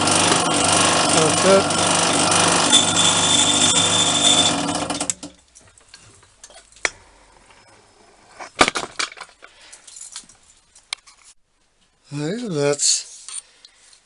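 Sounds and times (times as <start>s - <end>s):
workshop machine running: 0.0s - 5.3s.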